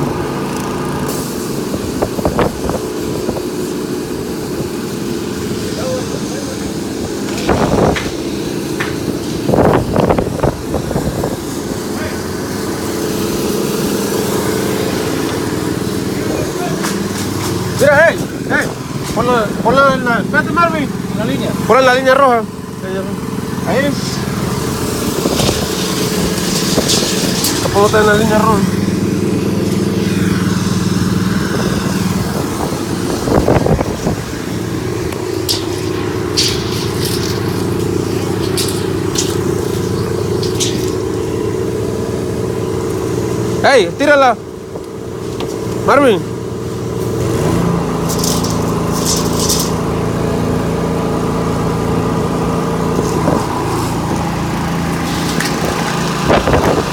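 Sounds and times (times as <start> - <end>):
engine running steadily: 0.0 - 56.9
voices: 5.6 - 9.2, 11.5 - 14.2, 15.0 - 46.8.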